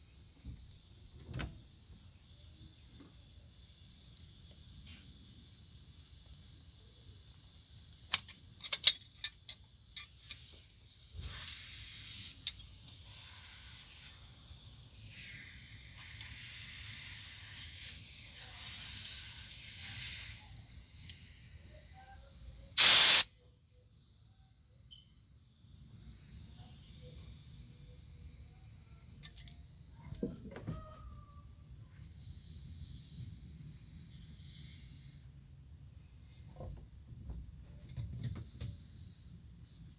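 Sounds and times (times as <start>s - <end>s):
compressed air hissing: 22.8s - 23.3s.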